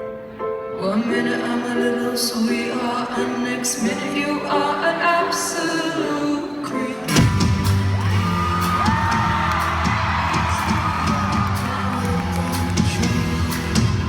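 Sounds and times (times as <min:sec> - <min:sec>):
live pop band with heavy bass: 0:07.1 - 0:14.0
audience whooping and screaming: 0:07.2 - 0:14.0.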